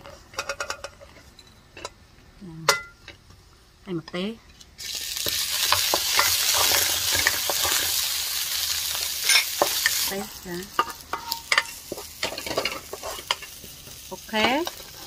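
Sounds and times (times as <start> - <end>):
garlic sizzling in hot oil: 4.8 - 15.0.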